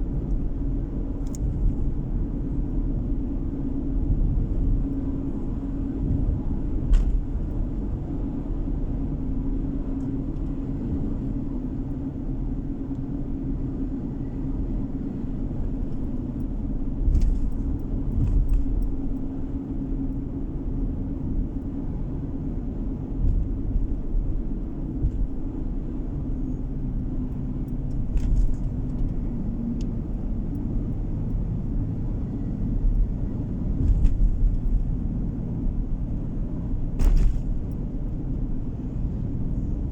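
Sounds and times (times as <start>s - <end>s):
car driving on road interior: 0.0s - 39.9s.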